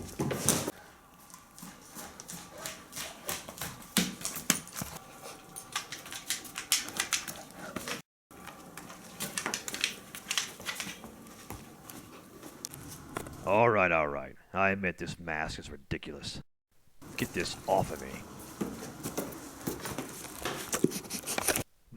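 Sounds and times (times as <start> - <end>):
dog claws clicking on hard floor: 2.2 - 5.0, 5.6 - 8.0, 8.8 - 11.6.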